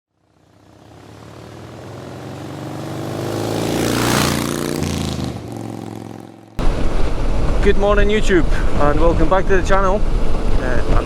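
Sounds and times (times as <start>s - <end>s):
motorcycle engine running: 0.1s - 11.0s
rush of noise: 6.6s - 11.0s.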